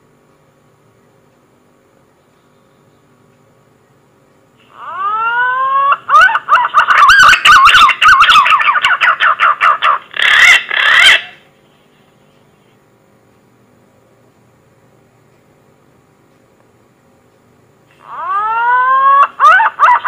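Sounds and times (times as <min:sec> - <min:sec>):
pigeon call whistle: 0:04.7 - 0:11.4.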